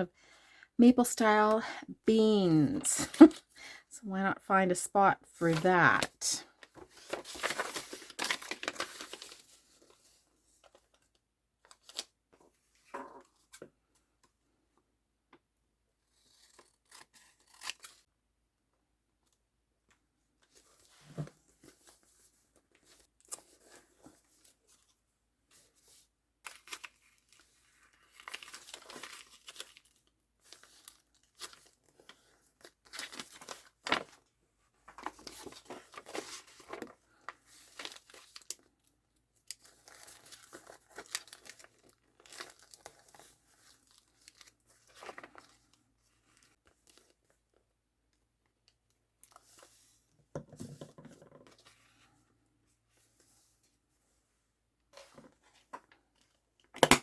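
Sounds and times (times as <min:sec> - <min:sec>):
paper tearing and crinkling: 0:07.0 - 0:09.4, 0:16.3 - 0:18.0.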